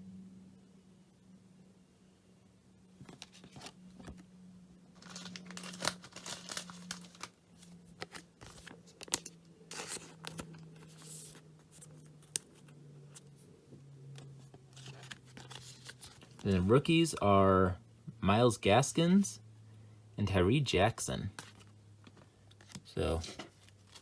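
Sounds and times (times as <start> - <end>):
faint steady hum: 0.0 - 24.0
trading cards shuffling: 3.0 - 4.2, 5.0 - 13.4, 14.2 - 16.5.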